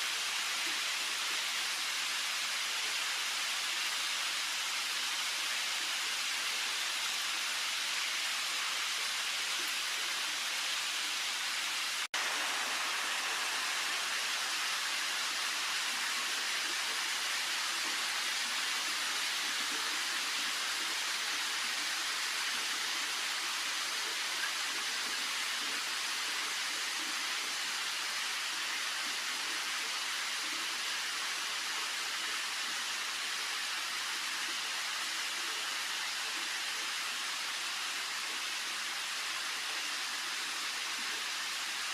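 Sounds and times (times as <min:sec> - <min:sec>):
heavy rain falling: 0:10.8 - 0:22.4.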